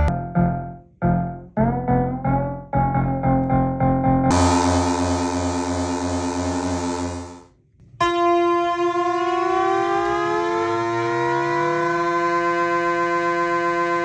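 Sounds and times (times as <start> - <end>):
synthesizer pulsing note: 4.3 - 7.4
synthesizer rising siren-like tone: 4.3 - 7.4.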